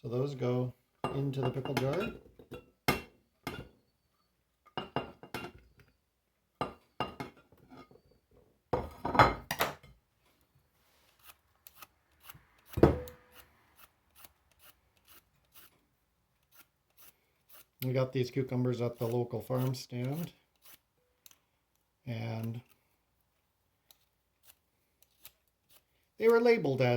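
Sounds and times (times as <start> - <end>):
knocks and clinks of jar: 6.6 - 7.4.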